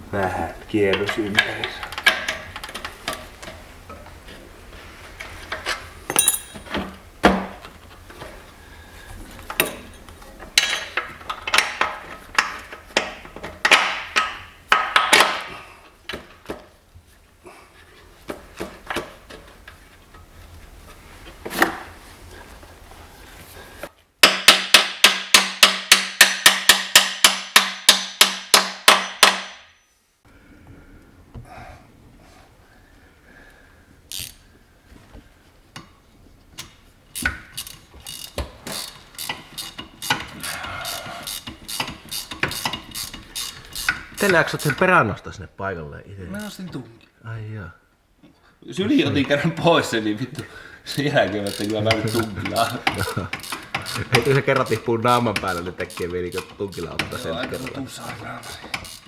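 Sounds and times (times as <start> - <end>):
metal tools clanking: 5.4 - 7.0, 9.5 - 12.8, 37.2 - 44.9, 49.0 - 59.0.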